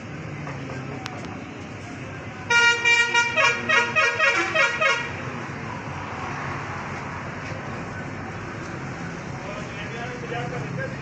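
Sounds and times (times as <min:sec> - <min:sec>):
road traffic noise: 0:00.0 - 0:11.0
vehicle horn short toots: 0:02.5 - 0:05.1.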